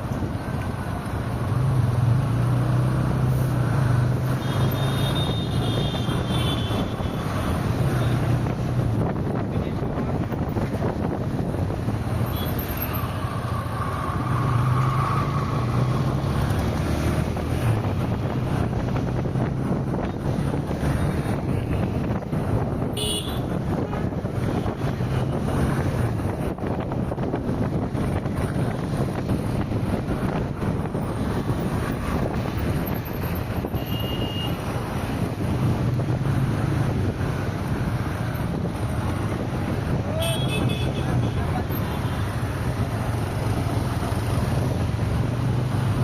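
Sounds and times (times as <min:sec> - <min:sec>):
road noise: 0:00.0 - 0:46.0
wind: 0:00.0 - 0:46.0
high tones from passing traffic: 0:12.2 - 0:17.3, 0:32.8 - 0:35.1.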